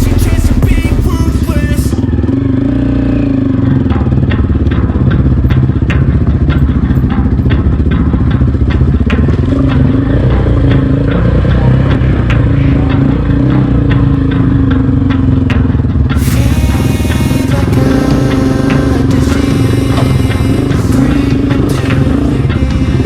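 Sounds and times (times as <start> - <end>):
background music: 0.0 - 2.1, 8.2 - 23.0
motorcycle engine running: 0.0 - 23.0.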